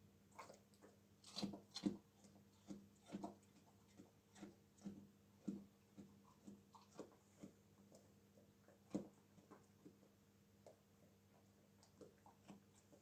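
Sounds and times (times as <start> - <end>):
dog crunching carrot: 0.3 - 10.0.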